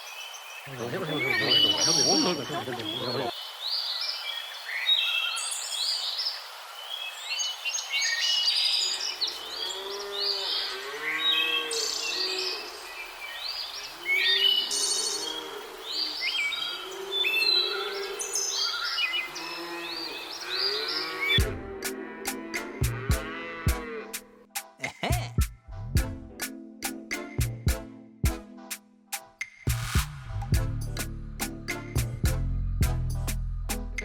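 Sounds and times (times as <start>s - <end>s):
birds chirping and singing: 0.0s - 24.2s.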